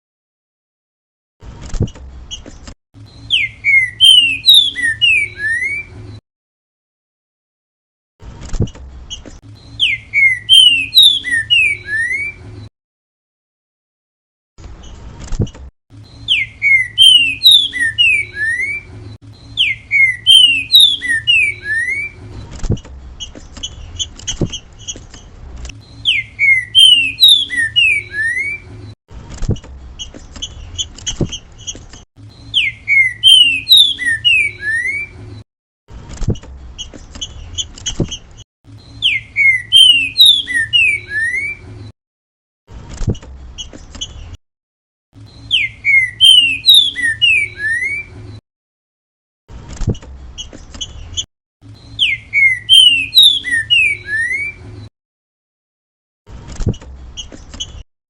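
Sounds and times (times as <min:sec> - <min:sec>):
bird whistling song: 0:03.1 - 0:06.0, 0:09.1 - 0:12.4, 0:16.0 - 0:22.3, 0:25.8 - 0:28.9, 0:30.0 - 0:35.2, 0:38.8 - 0:41.7, 0:45.2 - 0:48.2, 0:50.4 - 0:54.7.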